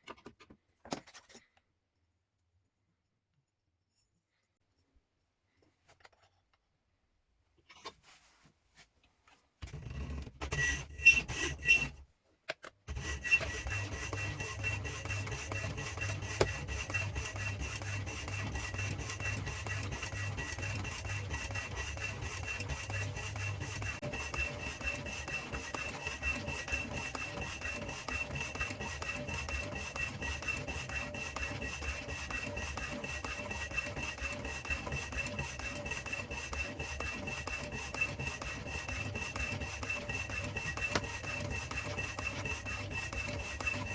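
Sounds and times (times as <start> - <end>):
power hacksaw sawing: 9.6 - 12.0, 12.9 - 43.9.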